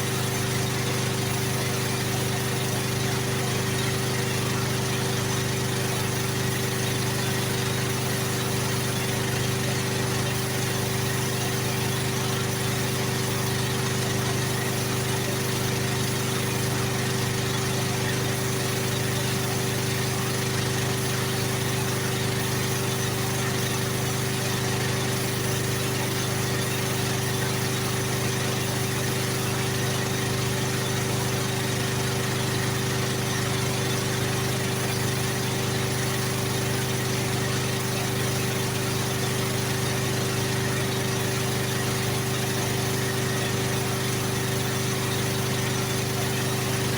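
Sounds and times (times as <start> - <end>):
machine motor hum: 0.0 - 46.9.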